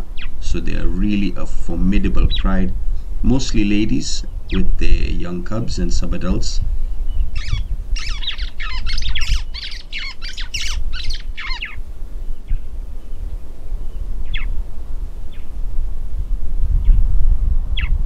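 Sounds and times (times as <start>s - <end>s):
steady low rumble: 0.0s - 18.0s
bird harsh downward calls: 7.1s - 11.8s, 14.2s - 14.5s.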